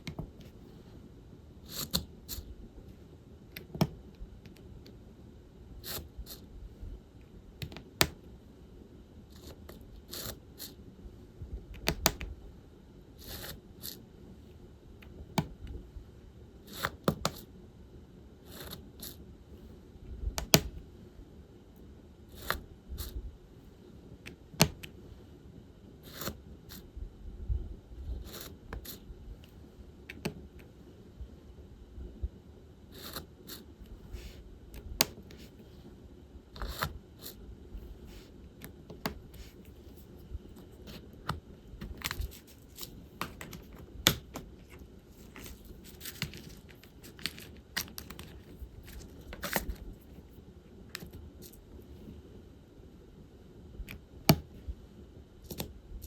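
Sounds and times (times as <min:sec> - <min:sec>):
scraping rustles in plastic trays: 0:41.8 - 0:49.8.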